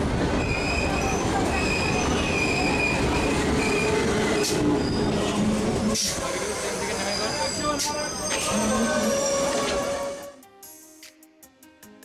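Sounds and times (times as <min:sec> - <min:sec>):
train wheels rumbling on rails: 0:00.0 - 0:10.3
high-pitched wheel squeal: 0:06.4 - 0:10.3.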